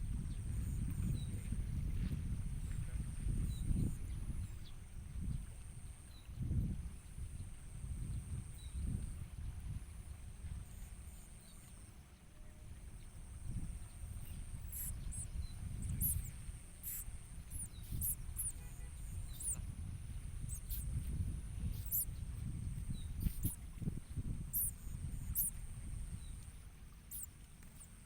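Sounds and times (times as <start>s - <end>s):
wind rumble on microphone: 0.0s - 28.0s
steady high whine: 9.9s - 28.0s
thin high bird chirps: 13.8s - 19.6s, 20.4s - 23.6s, 24.5s - 27.9s.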